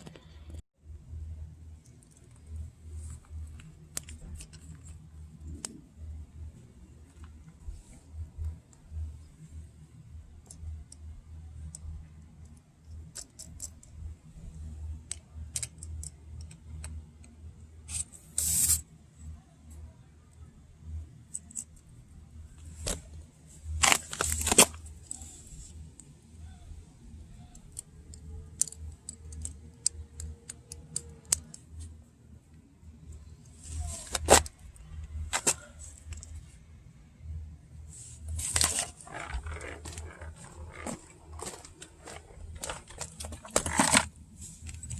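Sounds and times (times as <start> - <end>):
small metal parts clicking: 10.4 - 14.1, 14.9 - 18.8, 21.2 - 21.9, 27.2 - 31.9.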